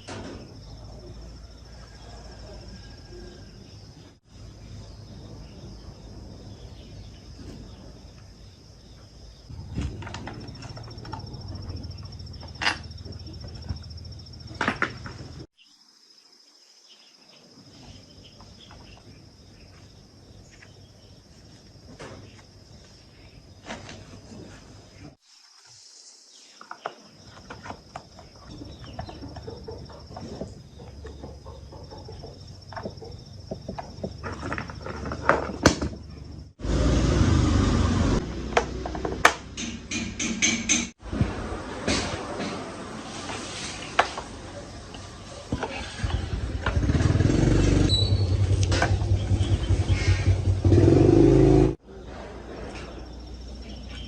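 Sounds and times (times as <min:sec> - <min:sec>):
insects chirring: 0:00.0 - 0:36.6, 0:50.4 - 0:54.0
handling knocks and clicks: 0:09.6 - 0:15.4
chainsaw engine running: 0:45.8 - 0:51.8.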